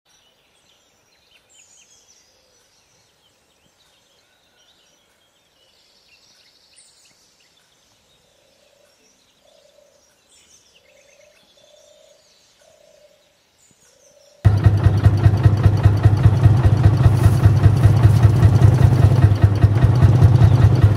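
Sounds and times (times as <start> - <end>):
birds singing and chirping: 0.1 - 14.5, 16.2 - 20.9
tractor engine running: 14.5 - 20.9.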